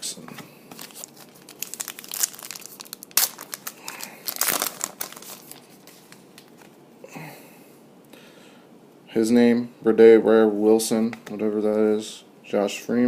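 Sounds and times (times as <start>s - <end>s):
card pack wrapper tearing and crinkling: 0.7s - 6.7s.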